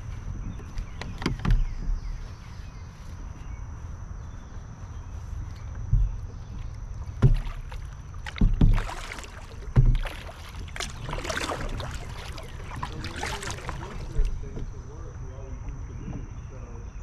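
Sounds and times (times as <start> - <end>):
low knocks: 5.8 - 11.2
paddle splashing in water: 5.9 - 14.9.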